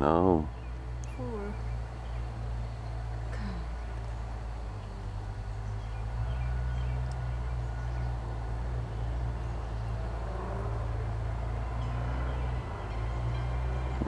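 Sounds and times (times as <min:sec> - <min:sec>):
low motor drone: 0:00.0 - 0:14.0.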